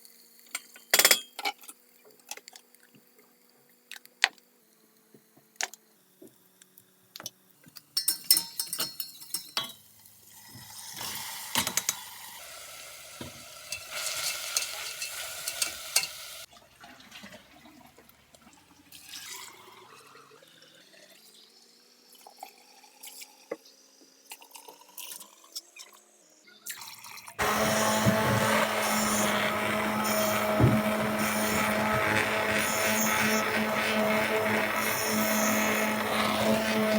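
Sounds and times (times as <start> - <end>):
dishes clinking: 0.6 - 1.7, 8.0 - 9.8
small electric appliance motor: 1.9 - 7.8, 27.4 - 36.9.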